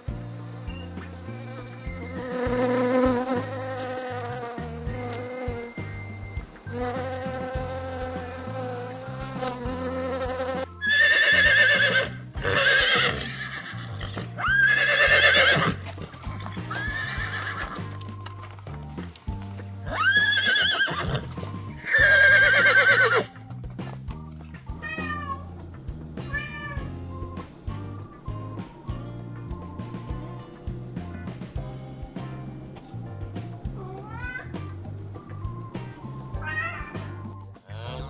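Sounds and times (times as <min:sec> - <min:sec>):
steady buzz: 0:00.0 - 0:10.9
background music with bass line: 0:00.0 - 0:38.0
horse whinnying: 0:09.4 - 0:18.2, 0:19.8 - 0:23.4, 0:37.6 - 0:38.0.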